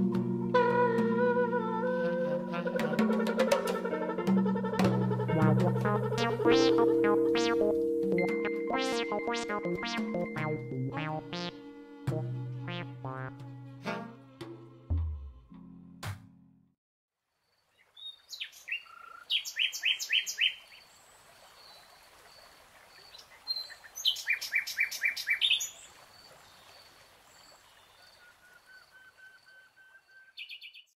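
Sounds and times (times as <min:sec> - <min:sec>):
faint outdoor hiss: 0:17.2 - 0:30.1
songbirds singing: 0:17.8 - 0:20.9.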